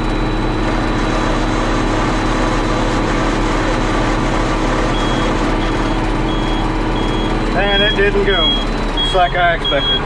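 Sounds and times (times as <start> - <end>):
tractor diesel engine running: 0.0 - 10.0
high-pitched alarm beeps: 4.8 - 10.0.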